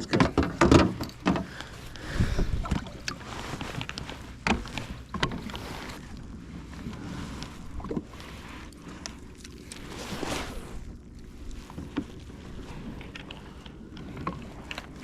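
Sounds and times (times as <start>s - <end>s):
water sloshing around kayak: 0.0s - 15.0s
wind on microphone: 1.9s - 3.8s.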